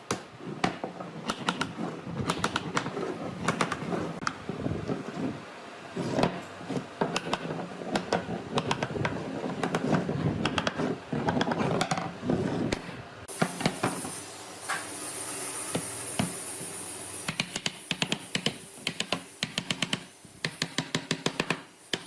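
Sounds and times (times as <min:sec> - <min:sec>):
steady high hiss: 0:13.1 - 0:22.0.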